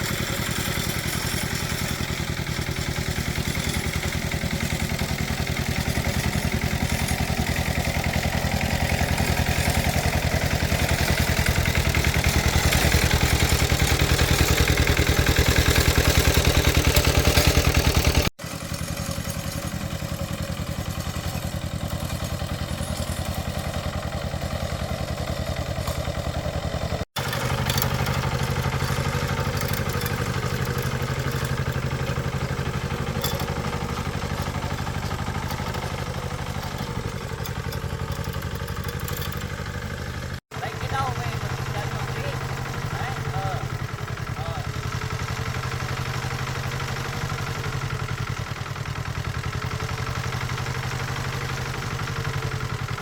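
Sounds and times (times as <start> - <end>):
small engine running: 0.0 - 53.0.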